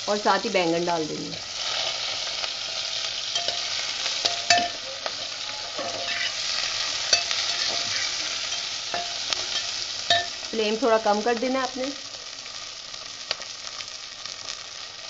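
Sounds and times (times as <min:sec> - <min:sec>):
vegetables sizzling in hot oil: 0:00.0 - 0:15.0
metal spatula scraping a pot: 0:03.3 - 0:10.3.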